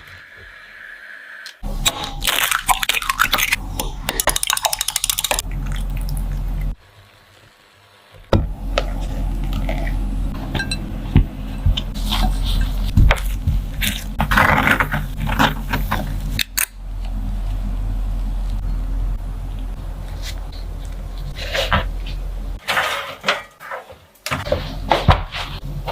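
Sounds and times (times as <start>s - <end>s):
low hum: 1.6s - 6.8s, 8.3s - 22.6s
utensils and dishes clinking: 10.5s - 10.9s, 22.6s - 24.0s.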